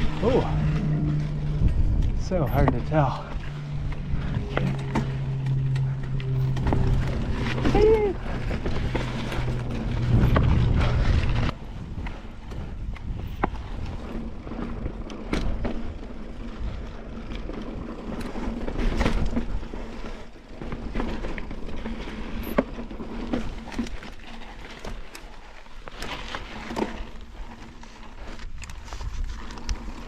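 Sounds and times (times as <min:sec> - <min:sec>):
wind on microphone: 0:00.0 - 0:14.4
bike knocks and rattles: 0:00.0 - 0:30.0
bike tyres rolling on rock: 0:00.0 - 0:30.0.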